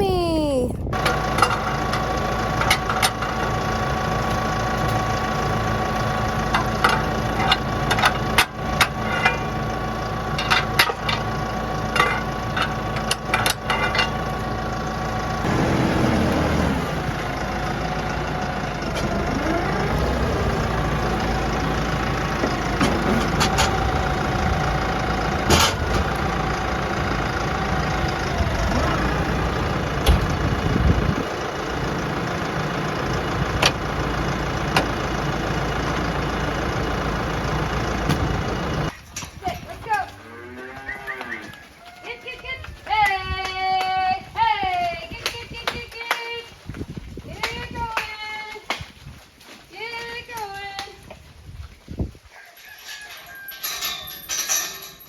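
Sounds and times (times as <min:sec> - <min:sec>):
tractor engine running: 0:00.0 - 0:40.1, 0:42.3 - 0:49.1
sharp metal clanks and knocks: 0:01.0 - 0:03.5, 0:06.5 - 0:09.6, 0:10.3 - 0:14.3, 0:25.5 - 0:26.0, 0:52.9 - 0:55.0.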